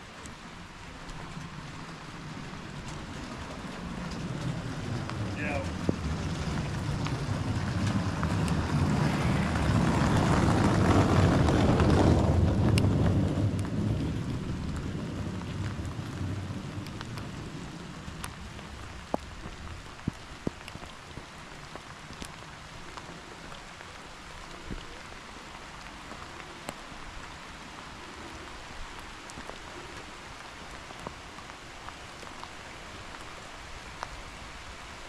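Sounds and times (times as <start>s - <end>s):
rain falling: 0.0s - 35.0s
low rumble: 0.5s - 21.1s.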